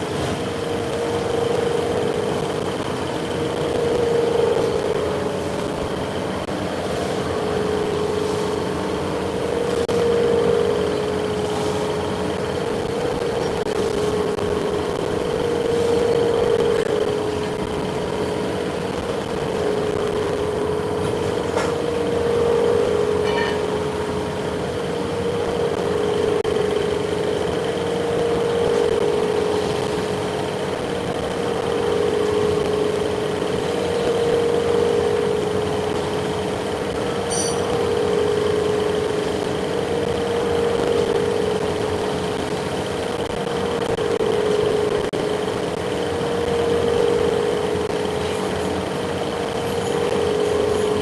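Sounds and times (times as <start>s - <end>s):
faint high whine: 0.0s - 51.0s
machinery humming: 0.0s - 51.0s
brief high tone: 22.2s - 23.8s, 37.1s - 37.9s.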